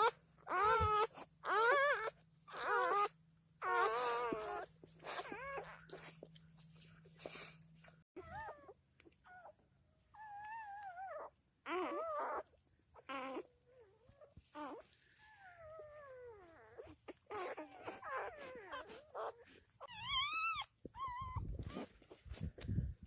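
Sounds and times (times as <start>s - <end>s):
puppies squealing and whimpering: 0.0s - 6.1s, 8.2s - 9.6s, 10.2s - 22.1s.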